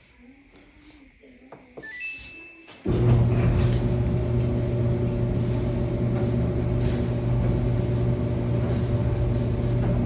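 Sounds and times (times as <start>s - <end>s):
clothes dryer humming: 2.8s - 10.0s.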